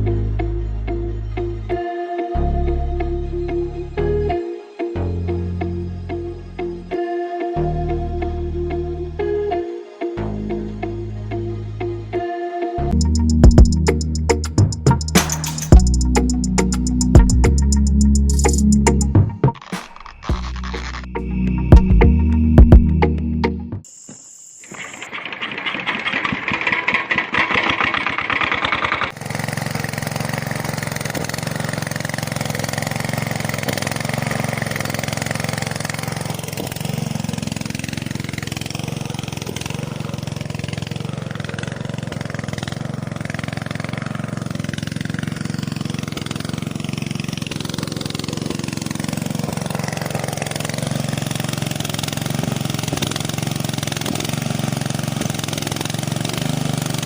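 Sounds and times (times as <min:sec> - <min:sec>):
engine running with low hum: 0:12.9 - 0:19.3, 0:25.1 - 0:57.0
small engine cranking: 0:12.9 - 0:21.2, 0:24.6 - 0:57.0.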